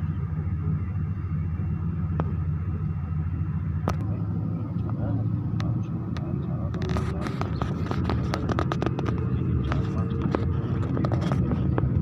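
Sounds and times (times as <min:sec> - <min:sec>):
jet engine rumble: 0:00.0 - 0:12.0
sharp clicks and rattles: 0:05.6 - 0:12.0.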